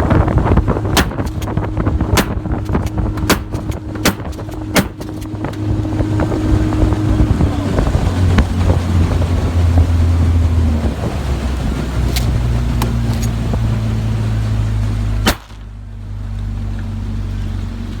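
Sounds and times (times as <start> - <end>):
motorboat engine humming: 0.0 - 18.0
rush of wind and water: 0.0 - 18.0
sharp click: 2.2 - 5.4.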